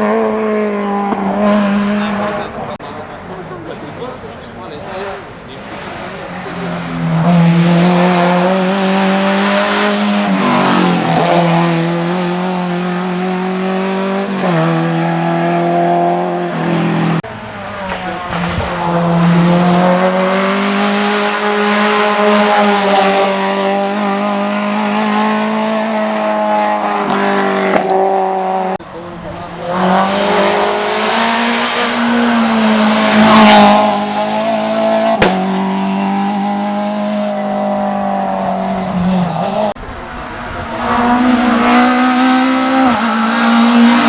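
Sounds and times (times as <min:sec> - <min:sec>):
race car engine at high revs: 0:00.0 - 0:44.0.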